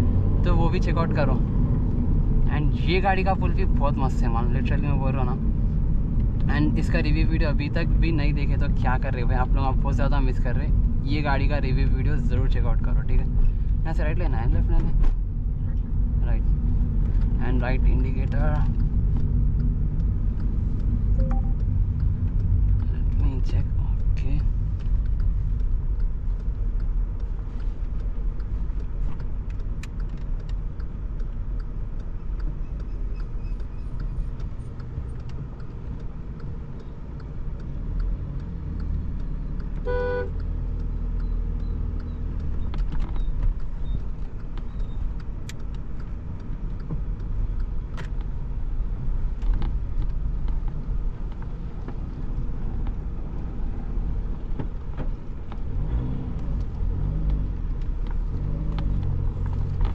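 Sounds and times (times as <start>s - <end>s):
car engine and road rumble: 0.0s - 59.9s
car horn toot: 39.8s - 40.3s.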